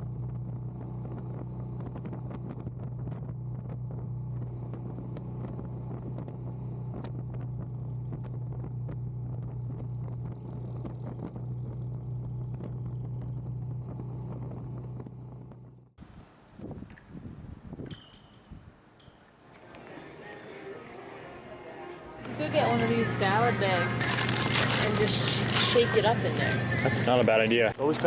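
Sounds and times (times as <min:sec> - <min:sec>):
wind noise on microphone: 0:00.0 - 0:15.1, 0:16.0 - 0:18.8
motorcycle engine running: 0:00.0 - 0:16.0.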